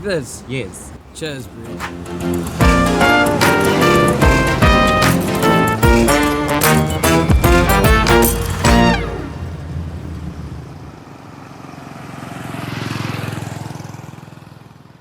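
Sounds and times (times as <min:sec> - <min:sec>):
motorbike engine passing: 0:01.9 - 0:14.9
music track final chord: 0:02.2 - 0:09.5.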